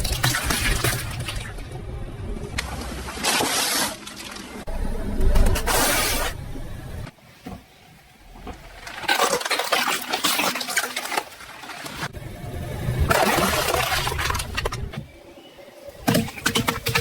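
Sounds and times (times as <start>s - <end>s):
low rumble: 0.0s - 3.2s, 4.6s - 7.1s, 12.1s - 15.2s.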